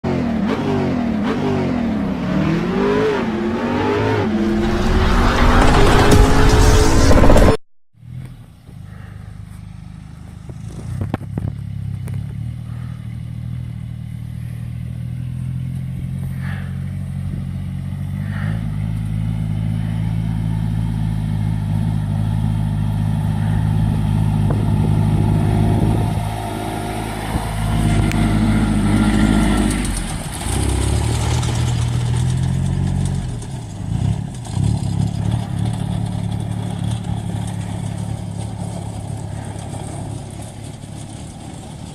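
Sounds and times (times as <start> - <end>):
motorcycle engine running: 5.7 - 41.9.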